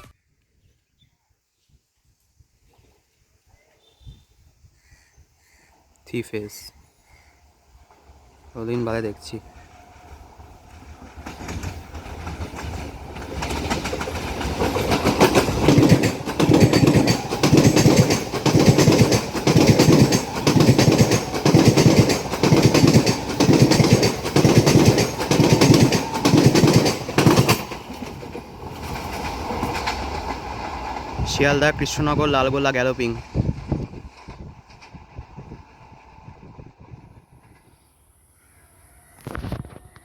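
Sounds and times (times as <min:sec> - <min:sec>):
train wheels clickety-clack: 0:09.6 - 0:37.8.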